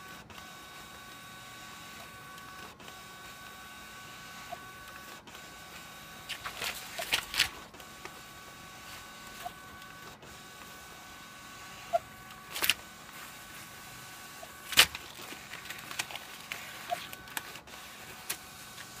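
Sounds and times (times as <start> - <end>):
paper clicks and rustles: 6.2 - 8.2, 12.3 - 13.7, 14.4 - 19.0.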